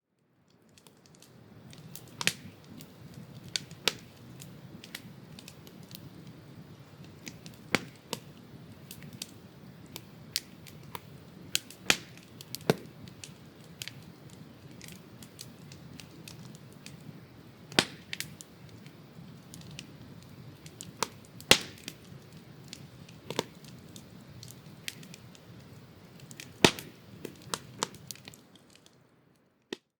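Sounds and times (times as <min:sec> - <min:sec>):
campfire crackling: 0:00.2 - 0:30.0.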